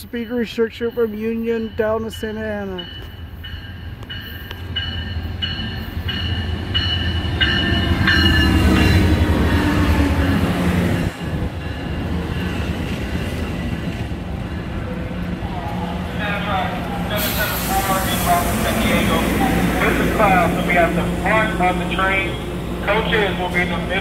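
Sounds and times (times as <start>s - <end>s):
train bell ringing: 0.0s - 9.2s, 10.2s - 12.7s
train engine and wheels rumbling: 0.0s - 24.0s.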